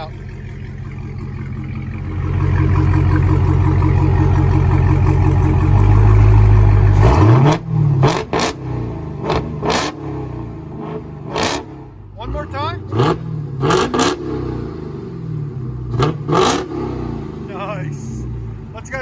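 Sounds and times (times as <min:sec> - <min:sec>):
exhaust cracks: 0:00.0 - 0:10.1
car engine deep drone: 0:00.0 - 0:19.0
engine revving: 0:01.1 - 0:19.0.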